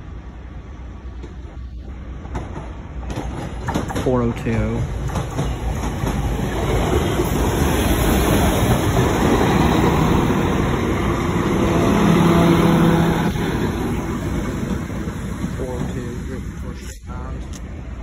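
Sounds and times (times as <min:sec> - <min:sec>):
rumble of train wheels on rails: 0:00.0 - 0:18.0
train hum: 0:00.0 - 0:18.0.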